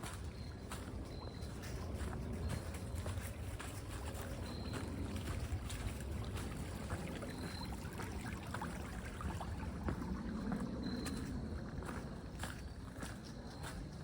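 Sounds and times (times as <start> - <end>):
forest creek trickling and gurgling: 0.0 - 14.0.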